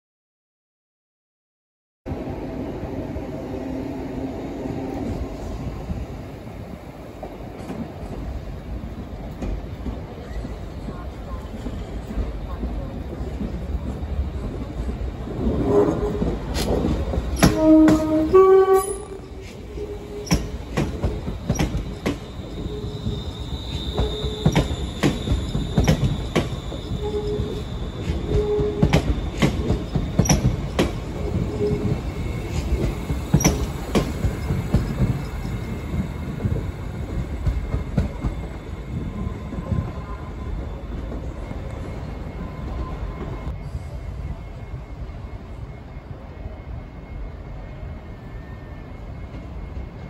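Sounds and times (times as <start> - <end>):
train low rumble: 2.1 - 50.0
two-note train horn: 17.4 - 20.4
high wheel squeal: 17.4 - 36.3.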